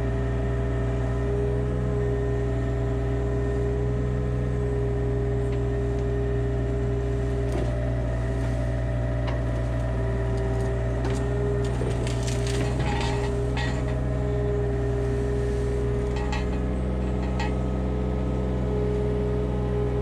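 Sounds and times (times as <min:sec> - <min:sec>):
diesel engine running: 0:00.0 - 0:20.0
constant whine: 0:04.6 - 0:20.0.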